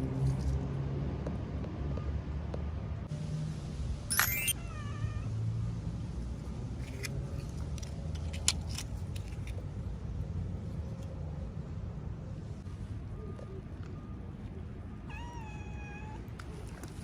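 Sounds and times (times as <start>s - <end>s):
cat meowing: 4.5s - 5.3s, 15.0s - 16.5s.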